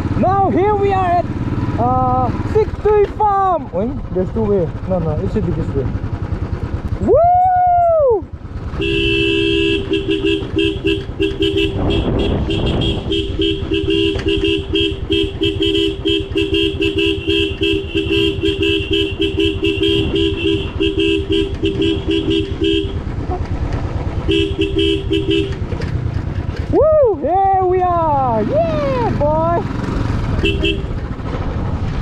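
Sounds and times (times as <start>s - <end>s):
motorcycle engine and wind rumble: 0.0s - 32.0s
vehicle horn tooting: 8.7s - 23.5s, 24.1s - 25.8s, 30.2s - 31.2s.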